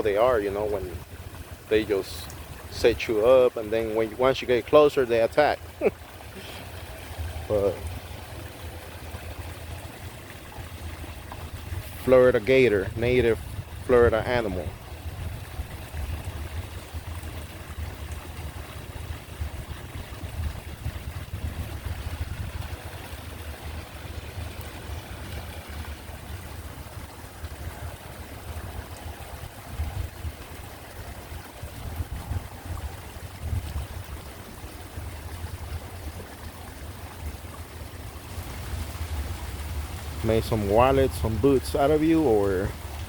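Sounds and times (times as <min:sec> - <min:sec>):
faint outdoor hiss: 0:00.0 - 0:43.0
wind buffeting microphone: 0:10.4 - 0:36.6.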